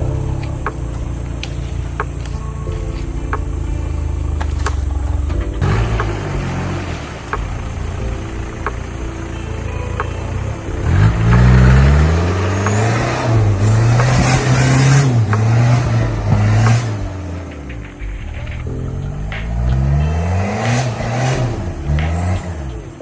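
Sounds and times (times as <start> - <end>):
engine revving under load: 5.0 - 8.0, 10.3 - 17.5, 19.2 - 23.0.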